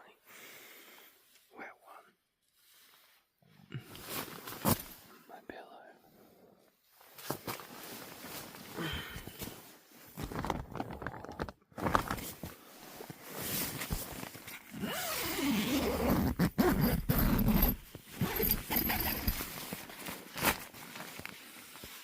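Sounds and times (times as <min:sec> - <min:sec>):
rustling: 0:06.9 - 0:15.4, 0:17.1 - 0:22.0
rumbling handling noise: 0:10.2 - 0:12.5
zipper pulled: 0:14.5 - 0:20.7.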